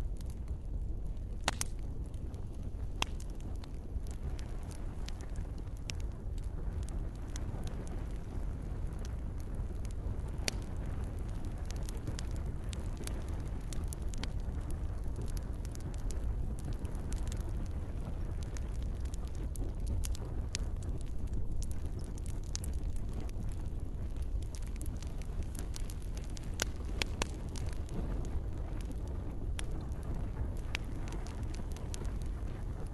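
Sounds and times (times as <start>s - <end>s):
campfire crackling and popping: 0.0s - 32.9s
low rumble of flames: 0.0s - 32.9s.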